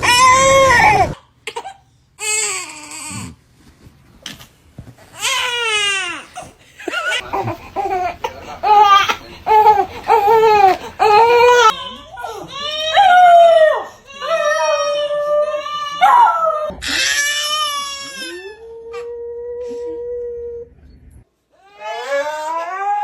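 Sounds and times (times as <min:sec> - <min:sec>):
baby crying: 0:00.0 - 0:03.2, 0:05.2 - 0:18.6, 0:21.6 - 0:23.0.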